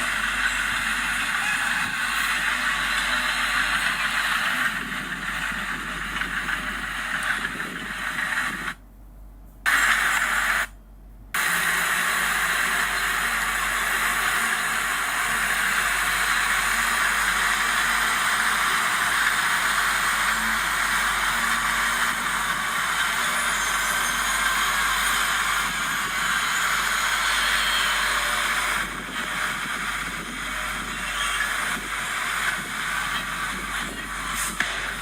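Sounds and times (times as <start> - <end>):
heavy machinery hissing: 0.0 - 8.8, 9.7 - 10.7, 11.4 - 35.0.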